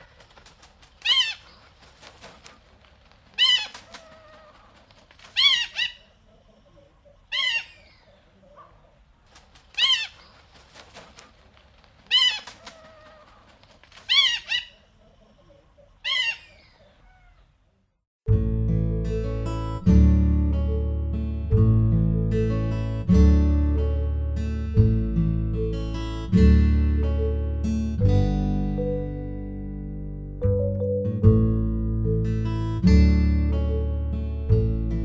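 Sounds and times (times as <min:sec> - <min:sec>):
eagle calling: 0:01.0 - 0:01.6, 0:03.4 - 0:04.7, 0:05.3 - 0:06.2.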